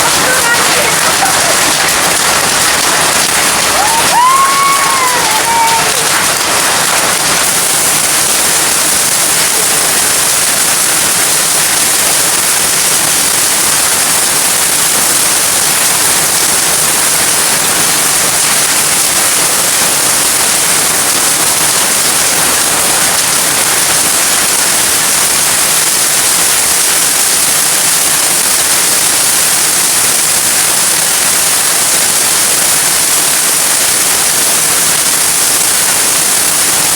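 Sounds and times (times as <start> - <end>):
steady loud rushing noise: 0.0 - 25.4.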